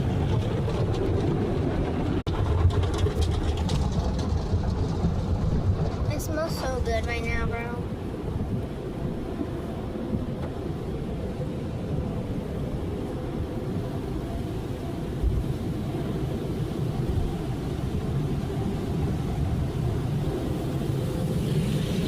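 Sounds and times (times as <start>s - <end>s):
car wash low rumble: 0.0s - 22.0s.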